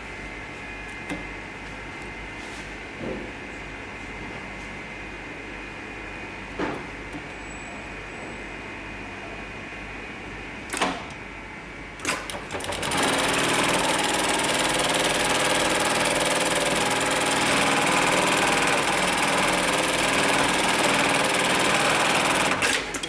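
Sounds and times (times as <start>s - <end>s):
sewing machine sewing: 12.1s - 23.0s.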